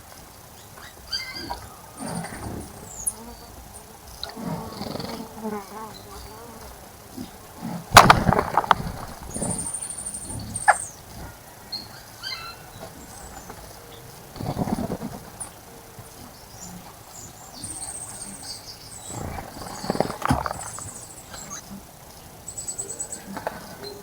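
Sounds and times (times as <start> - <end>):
birds splashing in water: 7.9 - 9.9, 19.0 - 21.7.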